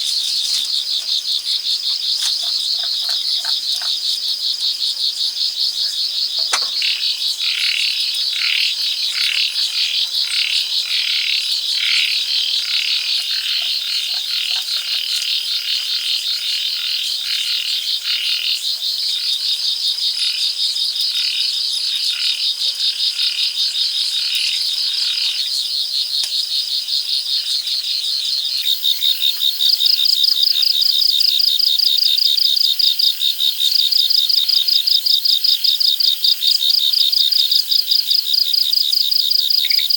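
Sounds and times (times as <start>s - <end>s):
insects trilling: 0.0s - 19.2s, 24.3s - 39.9s.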